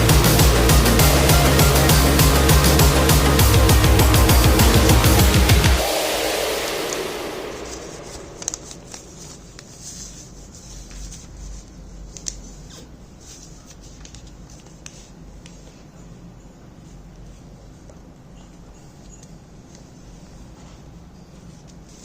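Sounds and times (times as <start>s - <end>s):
background music: 0.0s - 9.2s
paper rustling and crinkling: 8.0s - 15.9s.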